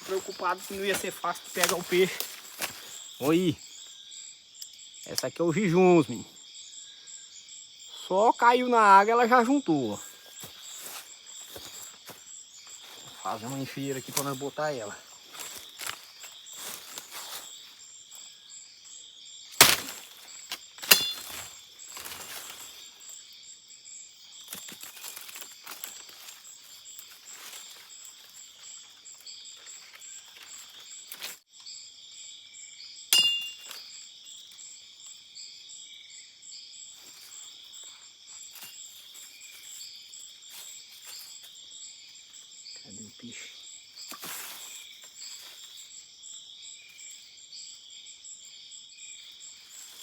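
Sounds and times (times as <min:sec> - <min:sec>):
dry leaves crackling: 0:00.0 - 0:03.6, 0:12.7 - 0:17.6, 0:19.6 - 0:23.0, 0:24.5 - 0:31.4
forest insects buzzing: 0:00.0 - 0:50.0
machete striking wood: 0:19.6 - 0:22.1, 0:33.2 - 0:33.8.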